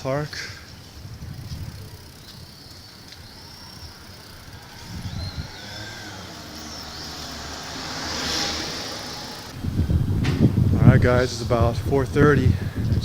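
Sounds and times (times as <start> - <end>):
bicycle road rumble: 0.0 - 13.0
wind noise: 0.0 - 13.0
faint high gliding squeaks: 1.4 - 9.5.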